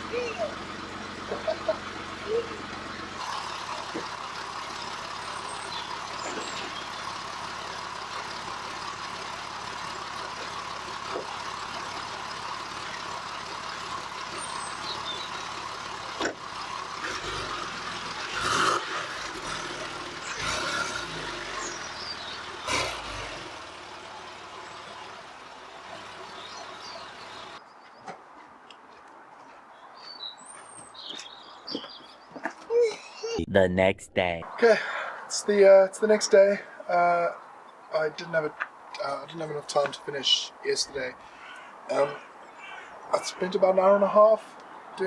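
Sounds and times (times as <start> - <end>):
car engine running: 0.0 - 27.6.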